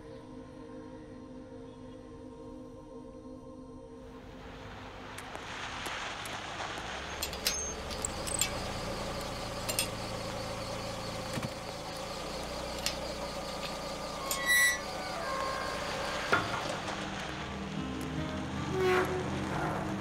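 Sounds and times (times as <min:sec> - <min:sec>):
car engine idling: 0:04.1 - 0:20.0
light clicks and clinks: 0:07.2 - 0:14.4.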